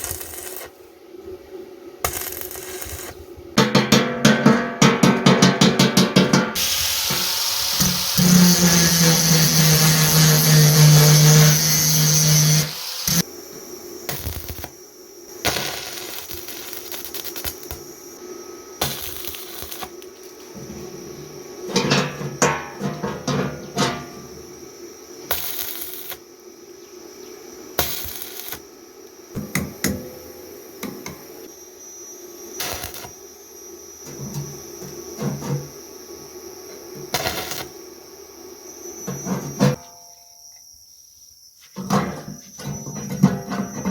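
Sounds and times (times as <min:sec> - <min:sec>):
steady low hum: 0:00.0 - 0:39.8
steel knocking against steel: 0:03.6 - 0:07.2
metal scraping: 0:06.4 - 0:13.2, 0:20.6 - 0:24.4
power tool motor humming: 0:06.6 - 0:13.2.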